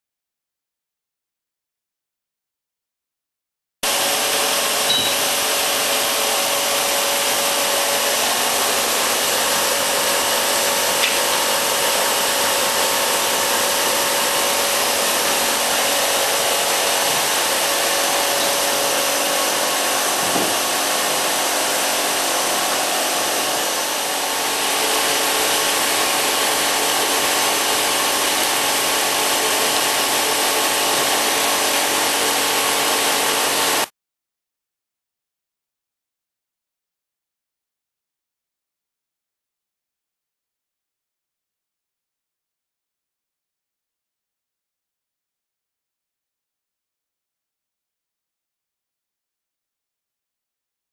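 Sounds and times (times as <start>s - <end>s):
humidifier fan hissing: 3.9s - 33.8s.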